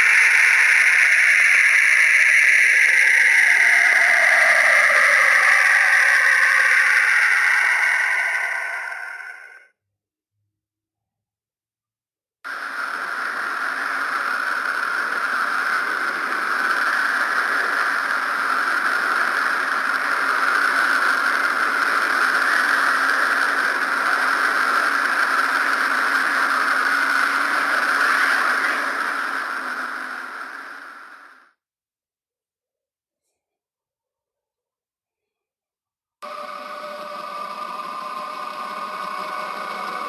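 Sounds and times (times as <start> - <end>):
steady rushing hiss: 0.0 - 9.6, 12.5 - 31.4, 38.2 - 40.0.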